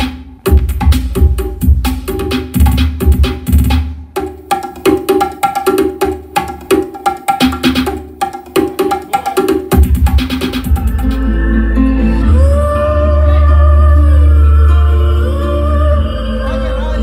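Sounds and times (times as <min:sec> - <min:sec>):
loud bass-heavy music from car speakers: 0:00.0 - 0:04.0, 0:09.6 - 0:17.0.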